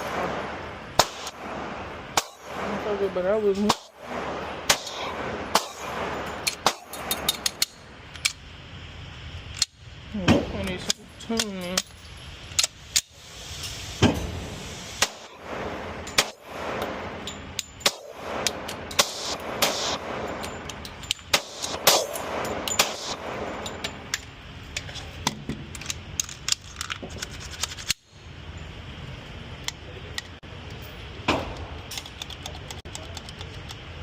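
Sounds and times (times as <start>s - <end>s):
pistol shots: 0.0s - 7.8s, 14.0s - 24.1s.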